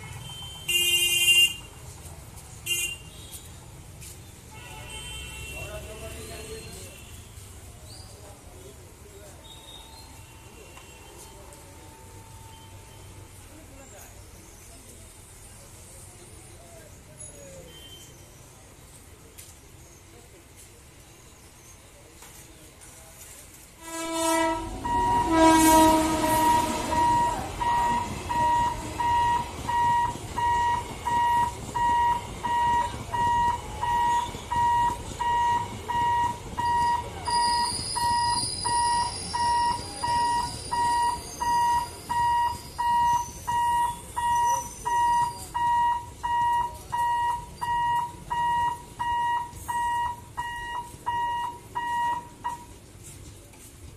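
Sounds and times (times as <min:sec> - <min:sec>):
train coaches rumbling past: 0:20.0 - 0:53.9
train horn: 0:23.8 - 0:29.2
electronic warning alarm beeping: 0:24.8 - 0:25.6, 0:26.4 - 0:52.7
high squeal: 0:36.7 - 0:45.5.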